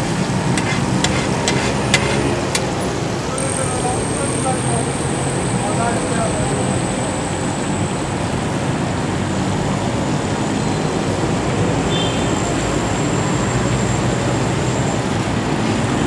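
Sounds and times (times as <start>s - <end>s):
liver sizzling in oil: 0.5s - 2.7s.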